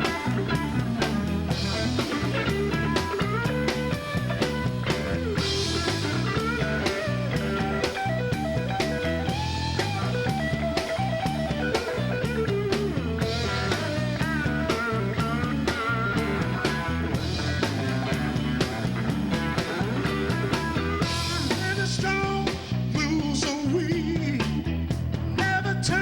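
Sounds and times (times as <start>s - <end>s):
drum kit beat: 0.0s - 26.0s
guitar lines: 0.0s - 26.0s.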